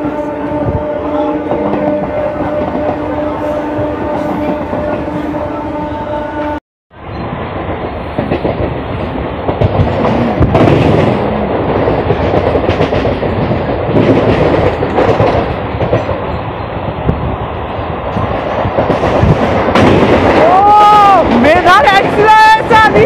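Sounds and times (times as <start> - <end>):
train wheels clattering on rails: 7.2 - 23.0.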